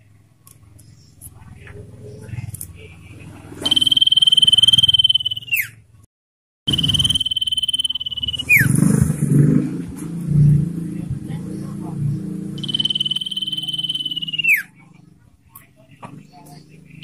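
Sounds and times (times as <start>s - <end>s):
bird whistling: 3.6s - 5.8s, 6.7s - 8.9s, 12.6s - 14.8s.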